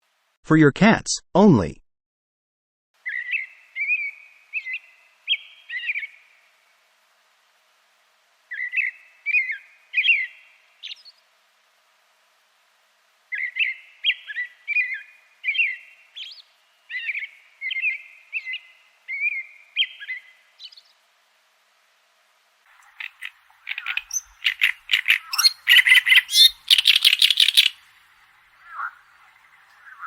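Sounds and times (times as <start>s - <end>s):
songbird singing: 3.0s - 6.6s, 8.5s - 11.3s, 13.3s - 21.1s, 22.7s - 30.0s.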